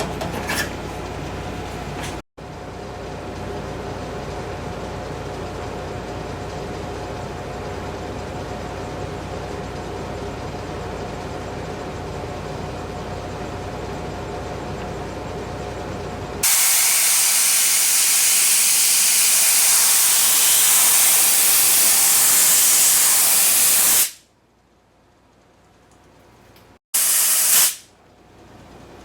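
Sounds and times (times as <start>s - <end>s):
compressed air hissing: 16.4s - 24.2s, 27.0s - 27.9s.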